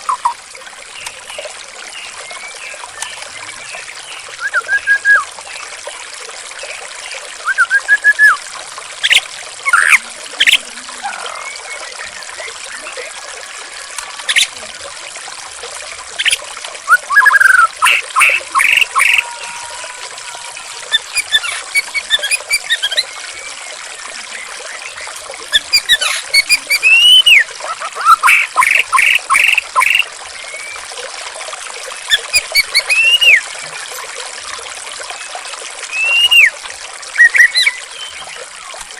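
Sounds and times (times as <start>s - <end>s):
trickling water: 0.0s - 38.9s
songbird whistling: 4.4s - 5.3s, 7.4s - 8.4s, 16.9s - 23.6s, 25.6s - 27.4s, 32.1s - 33.4s, 35.9s - 36.6s, 37.2s - 38.3s.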